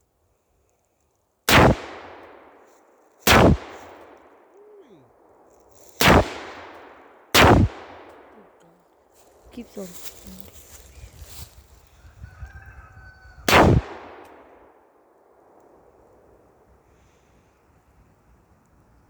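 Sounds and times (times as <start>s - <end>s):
rifle shots with echo: 1.5s - 8.6s, 13.4s - 16.4s.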